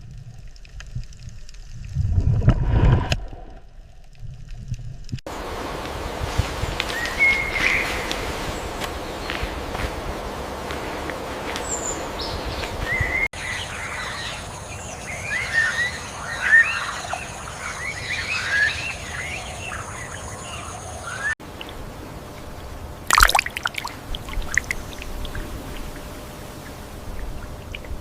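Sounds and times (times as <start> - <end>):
high-pitched hiss: 5.3 - 14.7
bird chirps: 6.8 - 10.0, 11.5 - 21.3.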